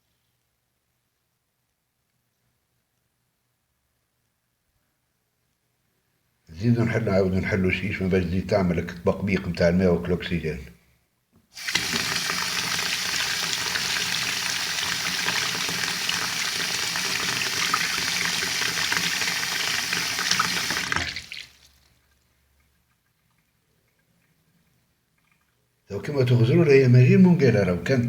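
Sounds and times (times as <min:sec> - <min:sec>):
tap water running into water: 0:11.6 - 0:21.9.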